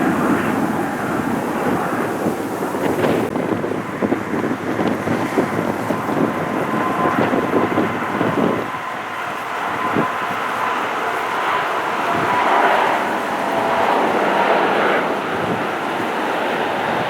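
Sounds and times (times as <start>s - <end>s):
jet engine noise: 0.0s - 17.0s
steady whine: 0.0s - 17.0s
wind buffeting microphone: 0.0s - 17.0s.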